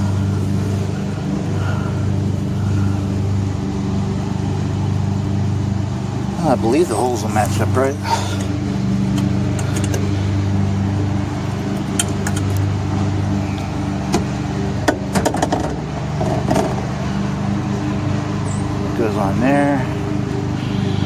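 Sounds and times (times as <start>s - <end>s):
engine humming: 0.0s - 21.0s
metallic clinks and taps: 9.1s - 10.1s, 11.8s - 12.6s.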